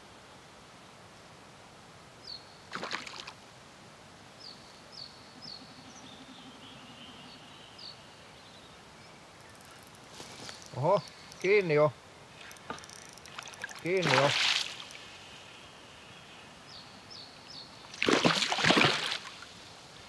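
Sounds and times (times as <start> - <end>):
faint outdoor background: 0.0 - 20.0
bird chirping: 4.4 - 18.0.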